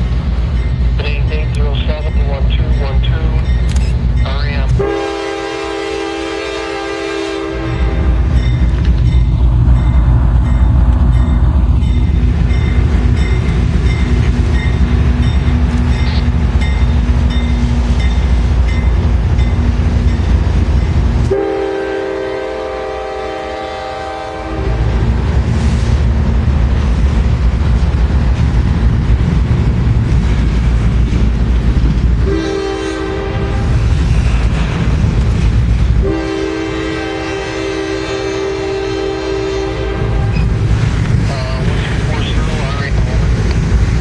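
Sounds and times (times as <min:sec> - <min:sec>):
freight train rumbling past: 0:00.0 - 0:44.0
locomotive horn blast: 0:04.7 - 0:08.3, 0:21.3 - 0:25.0, 0:32.2 - 0:33.9, 0:36.0 - 0:40.6.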